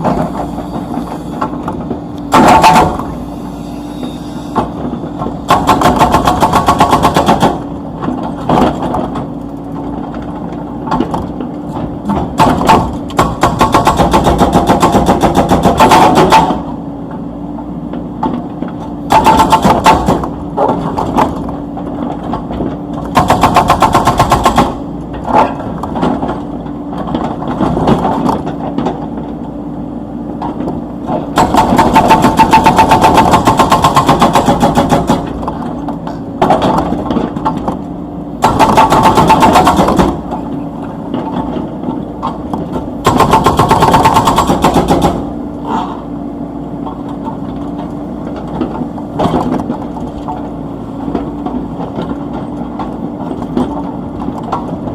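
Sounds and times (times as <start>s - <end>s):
hydraulic breaker hammering: 0.0s - 9.0s, 10.9s - 16.8s, 19.0s - 21.5s, 23.0s - 26.3s, 31.2s - 37.7s, 38.4s - 40.5s, 42.3s - 45.4s
excavator engine running: 0.0s - 54.9s.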